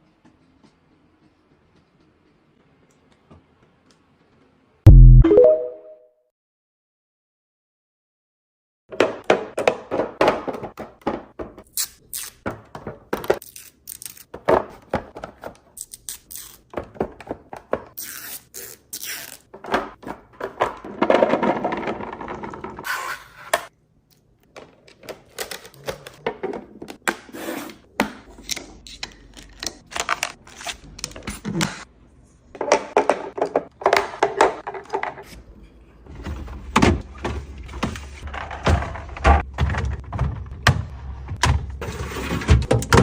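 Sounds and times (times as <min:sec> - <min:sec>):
containers knocking and scraping: 0:19.5 - 0:22.9.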